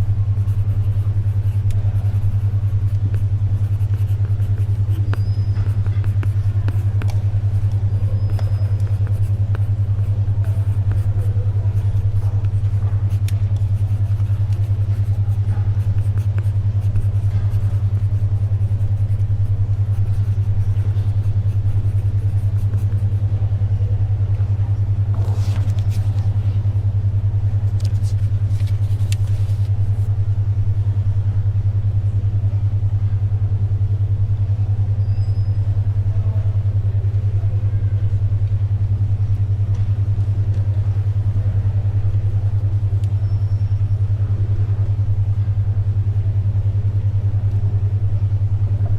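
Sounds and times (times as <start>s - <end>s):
pulsing low beat tone: 0.0s - 25.3s
library ambience: 0.0s - 32.8s, 35.7s - 48.9s
paper rustling: 25.1s - 26.3s, 27.8s - 30.1s.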